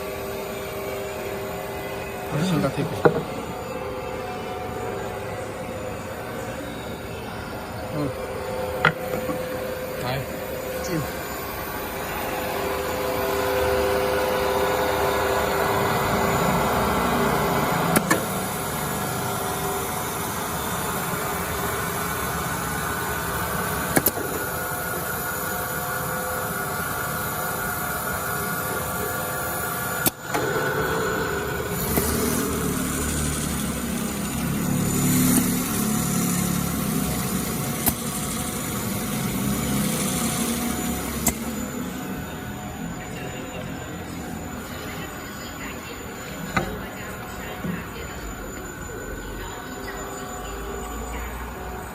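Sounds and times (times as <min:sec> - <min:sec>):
sanding machine drone: 0:00.0 - 0:44.6
sharp clicks: 0:41.2 - 0:41.5.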